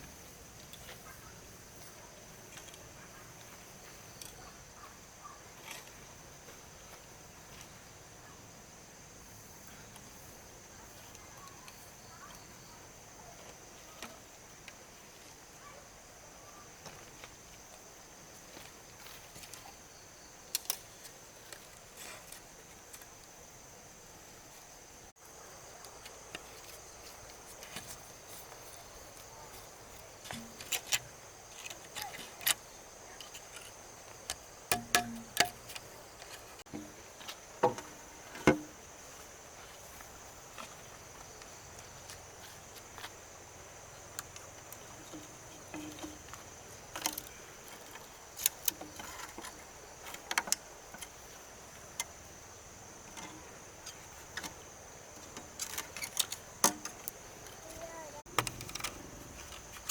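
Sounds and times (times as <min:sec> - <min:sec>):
insect chirring: 0:00.0 - 0:59.9
sharp knocks and clicks: 0:34.3 - 0:35.9.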